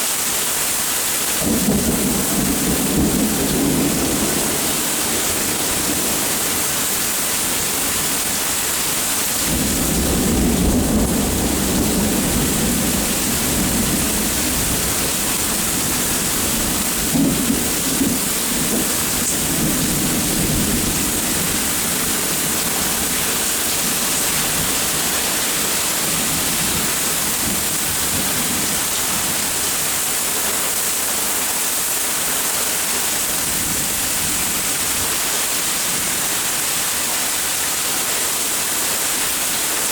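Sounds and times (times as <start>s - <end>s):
steady rain falling: 0.0s - 39.9s
thunder rumbling: 1.4s - 29.8s.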